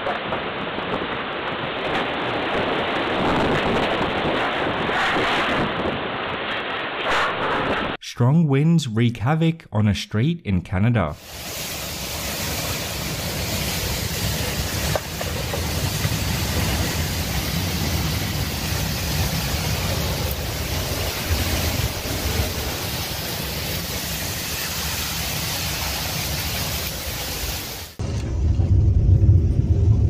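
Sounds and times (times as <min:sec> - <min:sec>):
strong wind buffeting microphone: 0:00.0 - 0:08.0.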